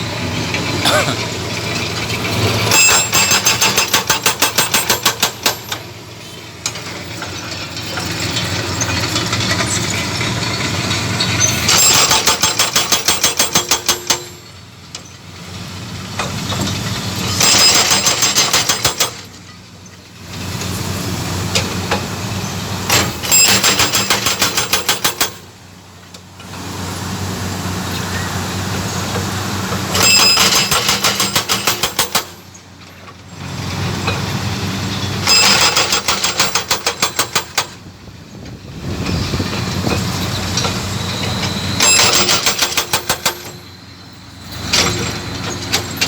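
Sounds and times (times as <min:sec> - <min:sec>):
diesel engine running: 0:00.0 - 0:46.0
hydraulic breaker hammering concrete: 0:02.5 - 0:05.9, 0:11.4 - 0:14.4, 0:17.4 - 0:19.3, 0:22.9 - 0:25.5, 0:29.8 - 0:32.6, 0:35.2 - 0:37.9, 0:41.8 - 0:43.6.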